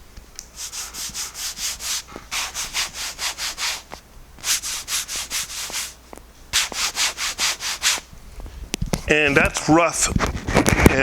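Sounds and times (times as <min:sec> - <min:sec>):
rubbing strokes on silicone: 0:00.5 - 0:08.1.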